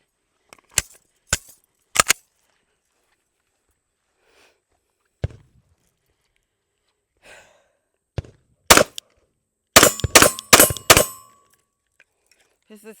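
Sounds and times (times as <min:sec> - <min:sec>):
pistol shots: 0:08.7 - 0:09.0, 0:09.8 - 0:11.3.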